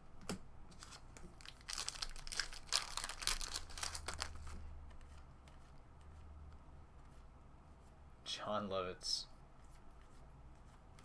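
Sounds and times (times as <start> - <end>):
foil wrapper crinkling and tearing: 1.4 - 4.6.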